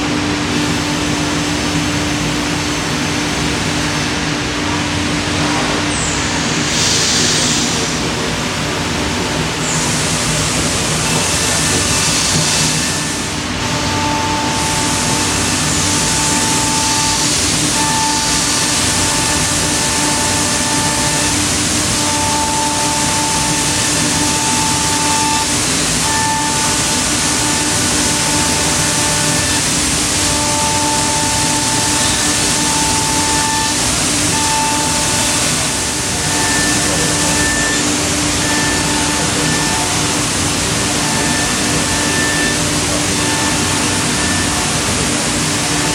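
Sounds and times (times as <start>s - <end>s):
constant machine hum: 0.0s - 45.9s
high cutter whine: 0.0s - 45.9s
router cutting wood hiss: 9.5s - 45.9s.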